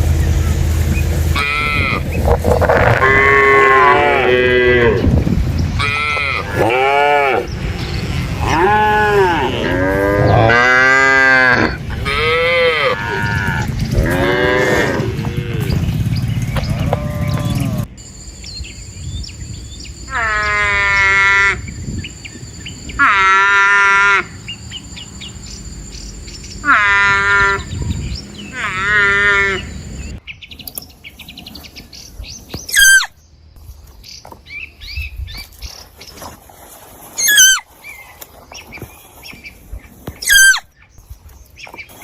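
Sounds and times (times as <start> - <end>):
farm animal bleating: 1.3 - 2.1, 2.7 - 5.1, 5.8 - 7.4, 8.4 - 15.9, 16.6 - 17.9, 26.6 - 27.8, 28.4 - 29.8
insect drone: 15.4 - 30.2
animal chirps and squeals: 32.7 - 33.2, 37.2 - 38.2, 40.2 - 40.7.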